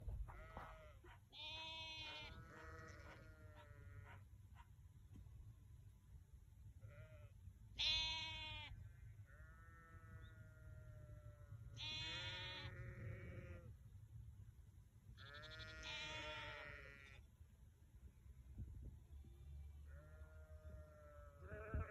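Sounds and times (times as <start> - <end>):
sheep bleating: 0.3 - 4.2, 6.8 - 8.7, 9.3 - 13.7, 15.2 - 17.2, 19.9 - 21.9.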